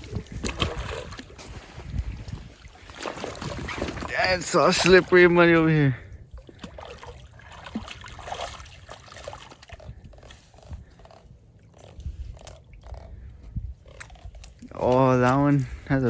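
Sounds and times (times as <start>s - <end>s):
feet squelching in mud: 0.0s - 5.1s, 6.5s - 12.6s.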